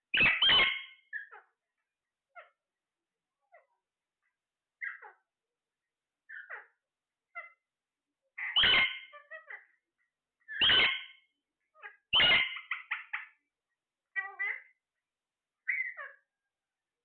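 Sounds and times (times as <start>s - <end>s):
parrot calling harshly: 0.1s - 1.5s, 8.4s - 9.8s, 10.5s - 11.2s, 11.8s - 13.4s, 14.2s - 14.7s, 15.6s - 16.2s
parrot chattering: 8.4s - 9.8s, 11.8s - 13.4s, 14.2s - 14.7s.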